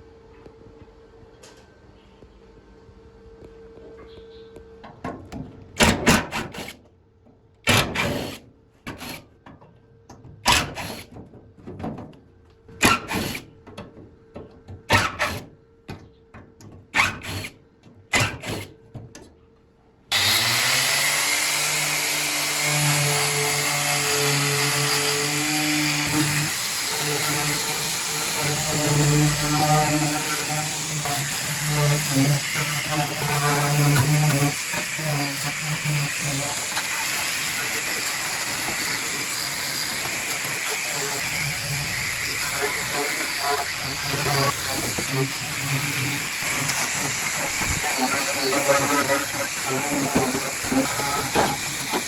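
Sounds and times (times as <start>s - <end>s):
power tool bursts: 7.7s - 9.2s, 20.1s - 52.0s.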